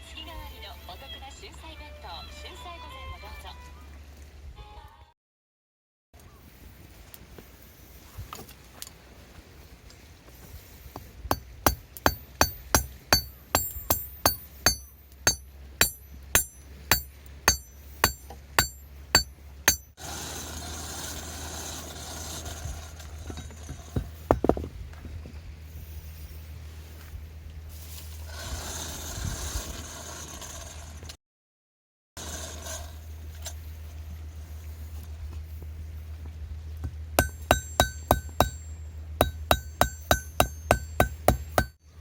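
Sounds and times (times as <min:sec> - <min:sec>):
hammer striking metal: 0:11.3 - 0:20.0, 0:37.2 - 0:41.8
dull knocks: 0:23.9 - 0:24.7.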